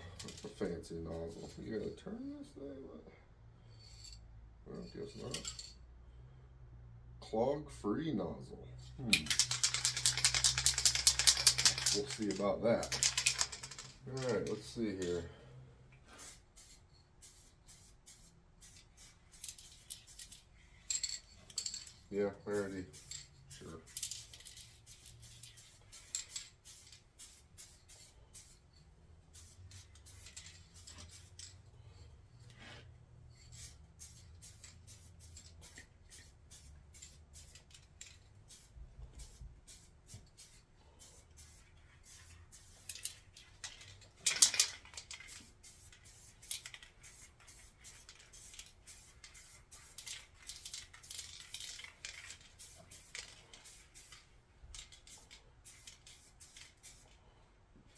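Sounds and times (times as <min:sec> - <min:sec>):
spray paint can hissing: 0:09.2 - 0:14.0, 0:16.1 - 0:21.0, 0:22.5 - 0:28.7, 0:29.3 - 0:31.5, 0:33.5 - 0:57.2.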